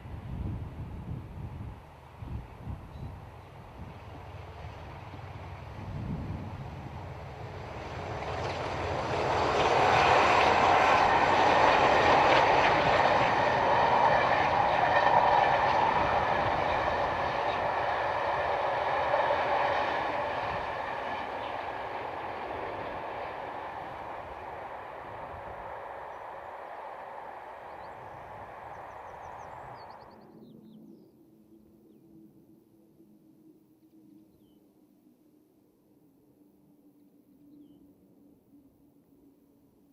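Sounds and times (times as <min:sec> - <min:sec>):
diesel train passing at speed: 0:00.0 - 0:33.0.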